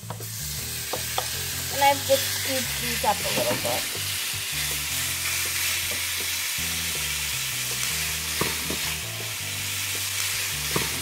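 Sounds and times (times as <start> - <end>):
chicken and onions sizzling: 0.0 - 11.0.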